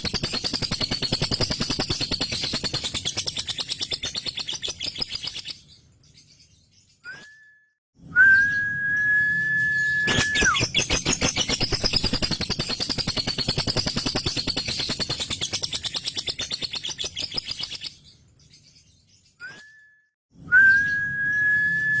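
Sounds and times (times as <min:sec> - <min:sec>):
high bird whistle: 0:08.1 - 0:17.4, 0:20.5 - 0:22.0
bird chattering trill: 0:10.1 - 0:17.9.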